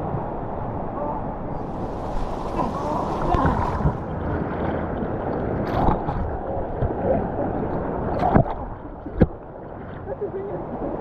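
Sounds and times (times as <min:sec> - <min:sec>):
waterfall rushing: 0:01.2 - 0:04.2.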